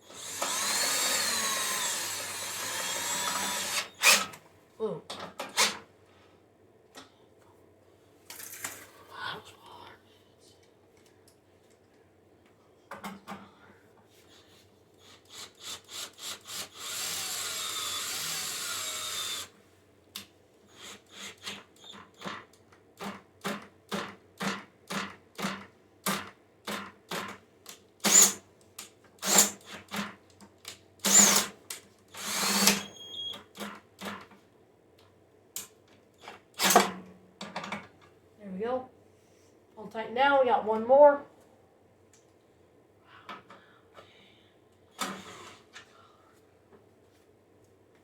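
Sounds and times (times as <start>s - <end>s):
power driver running: 0.0s - 4.3s.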